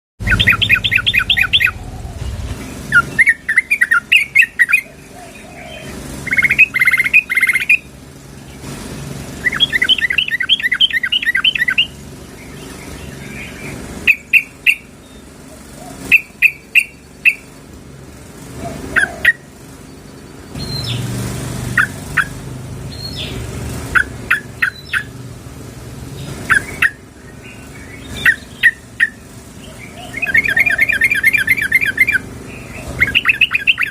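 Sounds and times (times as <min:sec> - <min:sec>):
bird chattering: 0:00.2 - 0:08.6, 0:09.4 - 0:17.7, 0:18.5 - 0:21.1, 0:21.7 - 0:25.2, 0:26.2 - 0:33.9
sharp bird notes: 0:00.2 - 0:17.7, 0:26.2 - 0:33.9.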